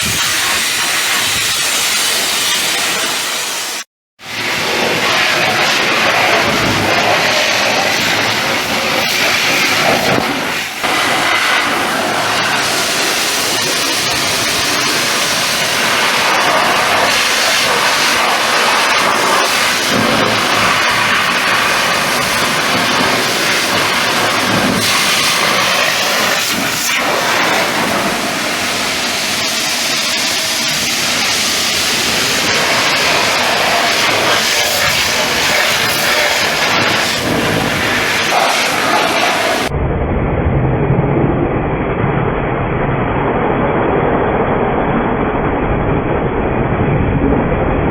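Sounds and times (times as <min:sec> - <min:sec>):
water spray hissing on metal: 0:00.0 - 0:39.7.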